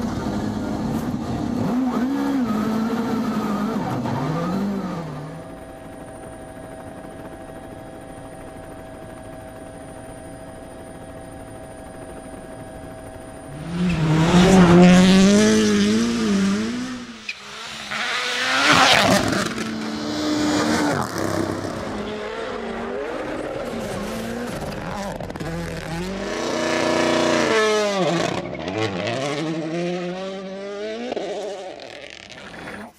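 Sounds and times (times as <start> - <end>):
rally car engine revving: 0.0 - 5.4, 13.5 - 32.9.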